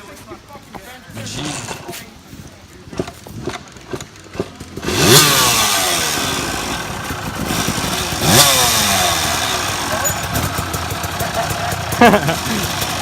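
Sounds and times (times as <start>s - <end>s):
dirt bike engine revving: 2.9s - 13.0s.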